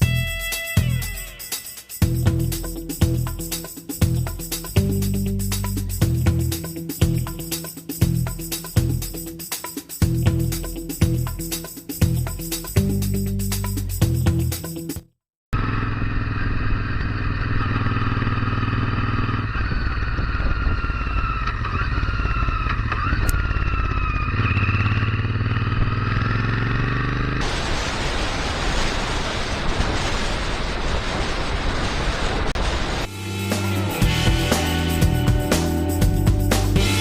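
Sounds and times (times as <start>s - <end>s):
motorcycle engine running: 15.6s - 27.4s
wind noise on microphone: 19.4s - 23.6s, 27.4s - 33.1s.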